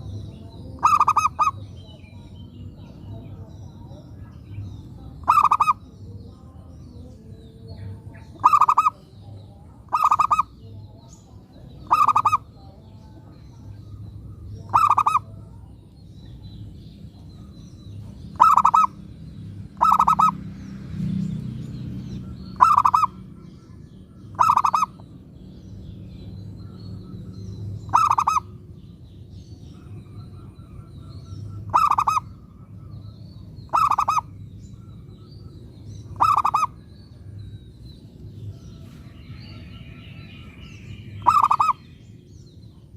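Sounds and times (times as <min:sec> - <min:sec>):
dove cooing: 0:00.8 - 0:01.6, 0:05.2 - 0:05.8, 0:08.3 - 0:09.0, 0:09.9 - 0:10.5, 0:11.8 - 0:12.5, 0:14.7 - 0:15.4, 0:18.3 - 0:19.0, 0:19.8 - 0:20.4, 0:22.6 - 0:23.2, 0:24.3 - 0:25.0, 0:27.9 - 0:28.5, 0:29.8 - 0:32.9, 0:33.7 - 0:34.4, 0:36.0 - 0:36.8, 0:41.2 - 0:41.8.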